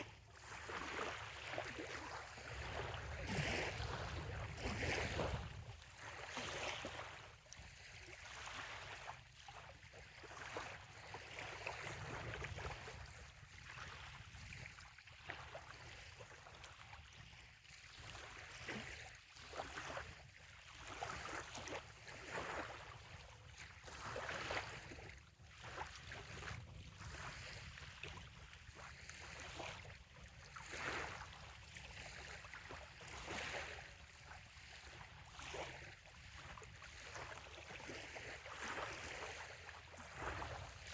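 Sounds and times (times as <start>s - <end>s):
gentle waves lapping on shore: 0.0s - 40.9s.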